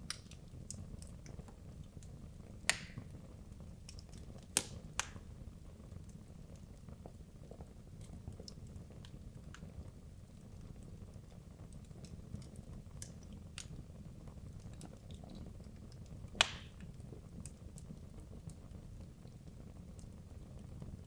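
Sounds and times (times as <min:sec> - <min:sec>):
fireplace fire crackling: 0:00.0 - 0:21.0.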